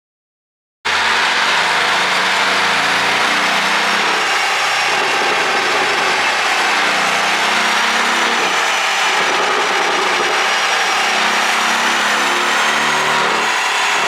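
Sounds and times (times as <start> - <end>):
car engine running loudly: 0.9 - 14.0.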